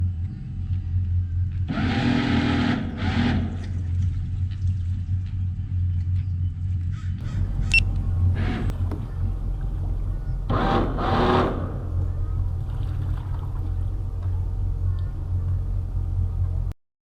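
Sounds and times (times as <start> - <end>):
boat engine idling: 0.0 - 16.7
bursts of rushing noise: 10.5 - 13.1.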